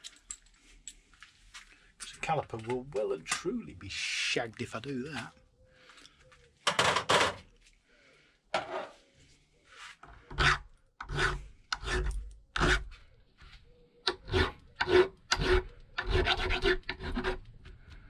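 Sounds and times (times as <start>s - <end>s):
hand tool scraping metal: 10.3s - 12.9s, 14.1s - 17.5s.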